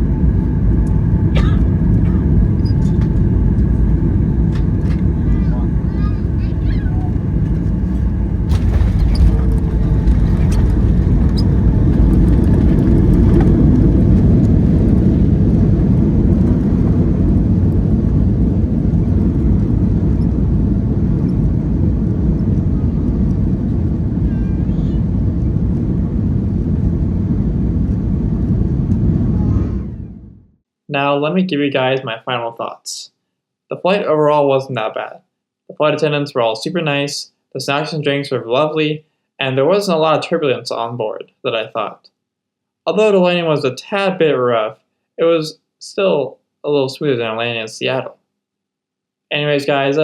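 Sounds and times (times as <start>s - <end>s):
jet engine cabin rumble: 0.0s - 30.6s, 49.4s - 50.0s.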